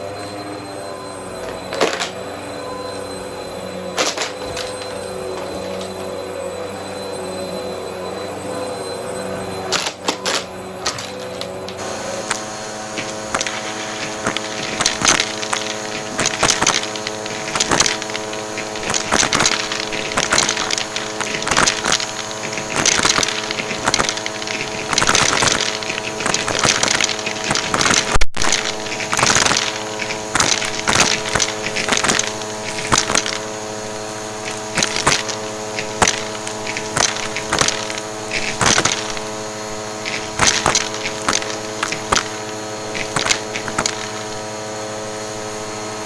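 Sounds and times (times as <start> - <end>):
vacuum cleaner motor hum: 0.1 - 46.0
coins clattering: 9.7 - 44.5.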